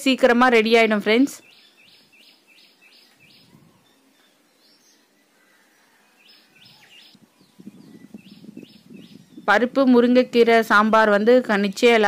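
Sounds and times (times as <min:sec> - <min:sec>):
small bird chirping: 0:06.2 - 0:09.6.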